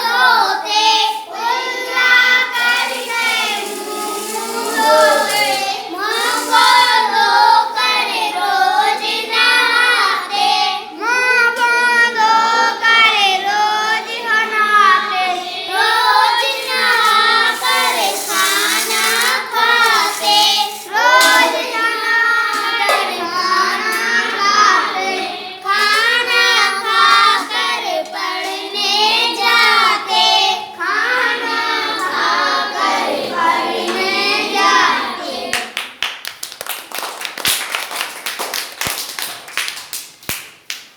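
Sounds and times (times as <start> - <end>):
child-like voice singing: 1.0 - 10.3, 10.9 - 35.7
sharp hand claps: 35.5 - 40.9.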